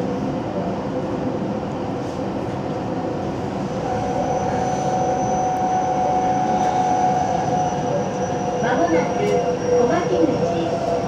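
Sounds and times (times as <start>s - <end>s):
traction motor whine: 3.8s - 11.0s.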